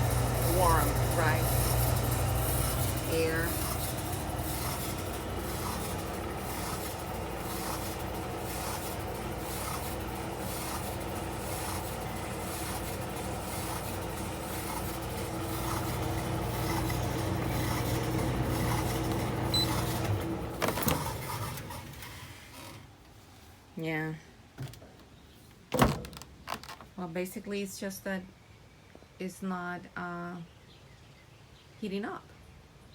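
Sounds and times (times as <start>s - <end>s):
clothes dryer humming: 0.0s - 23.1s.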